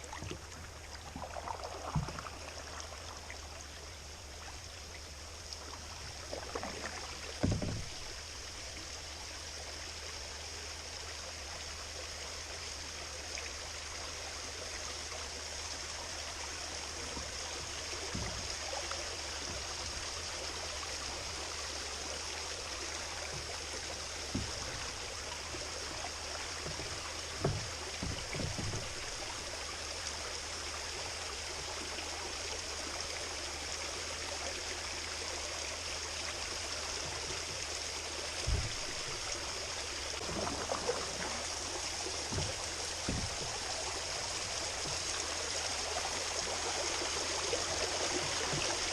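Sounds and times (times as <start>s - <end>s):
water trickling around kayak: 0.0s - 48.9s
dull low knocks: 5.8s - 8.6s, 17.0s - 20.3s, 23.0s - 29.6s, 38.3s - 46.3s.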